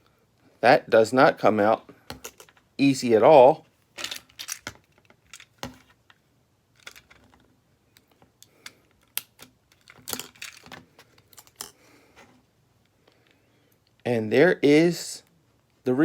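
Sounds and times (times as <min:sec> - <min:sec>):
tools clicking on smartphone parts: 0:07.9 - 0:11.8.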